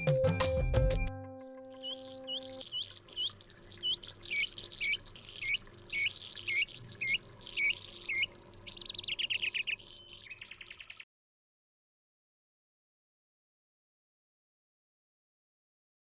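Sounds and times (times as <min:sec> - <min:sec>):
bird notes falling in pitch: 0:01.1 - 0:11.0
bird chirping: 0:01.5 - 0:11.1.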